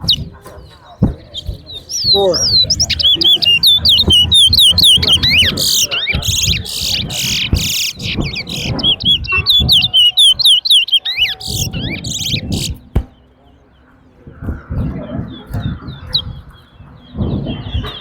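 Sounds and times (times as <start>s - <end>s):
finch singing whistled trills: 0.0s - 12.8s
murmur of voices: 0.0s - 18.0s.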